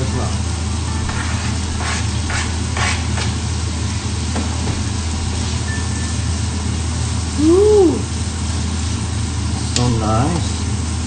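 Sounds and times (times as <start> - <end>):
food sizzling in a frying pan: 0.0 - 11.0
steady low hum: 0.0 - 11.0
spatula scraping: 0.9 - 3.4.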